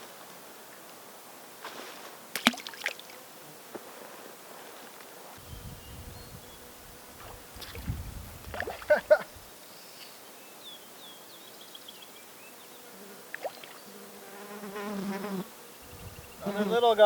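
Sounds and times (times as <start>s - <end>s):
fly buzzing: 5.4s - 9.5s, 12.5s - 17.0s
bird chirping: 9.6s - 14.1s.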